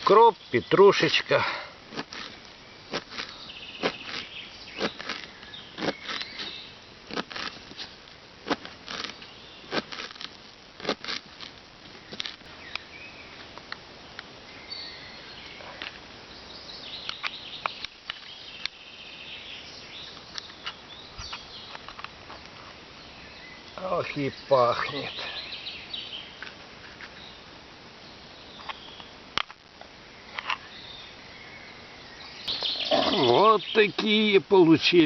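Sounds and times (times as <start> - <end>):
birds chirping: 0.0 - 8.0, 8.9 - 10.0, 11.9 - 29.2, 30.0 - 35.0.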